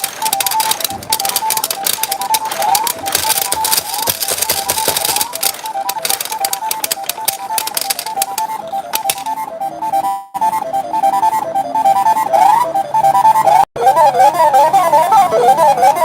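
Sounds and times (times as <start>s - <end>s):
pachinko balls clattering: 0.0s - 9.4s
electronic beeping tune: 0.0s - 13.7s
quick rising bleeps: 8.4s - 13.6s.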